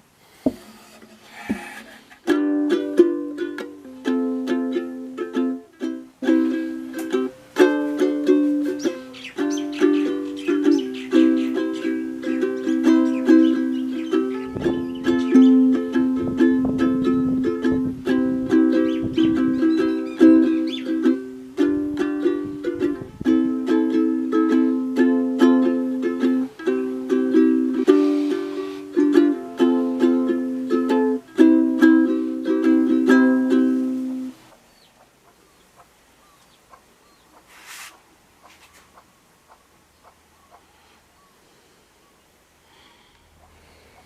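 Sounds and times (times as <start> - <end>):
ukulele strumming chords: 1.5 - 34.5
brief hiss: 27.9 - 28.9, 37.5 - 38.0.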